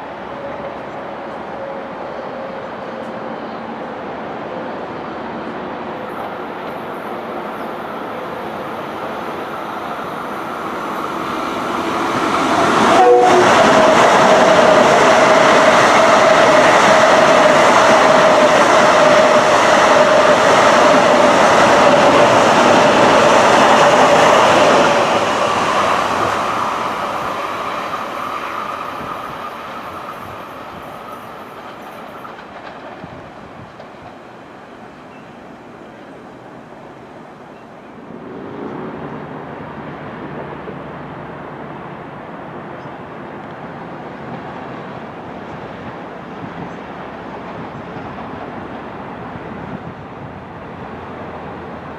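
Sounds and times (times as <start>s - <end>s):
train passing with wheel noise: 0.0s - 51.9s
train whine: 0.0s - 51.9s
train horn blast: 12.8s - 13.9s.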